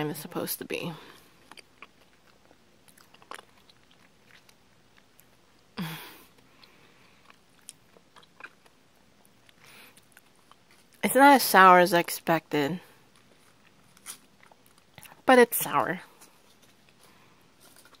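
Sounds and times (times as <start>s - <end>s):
chewing mouth sounds: 1.2s - 5.4s, 6.4s - 11.0s, 13.1s - 15.2s.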